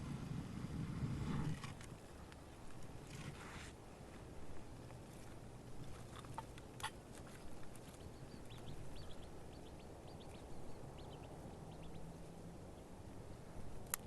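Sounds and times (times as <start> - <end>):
low wind rumble: 0.0 - 14.0
small bird chirping: 5.8 - 13.0.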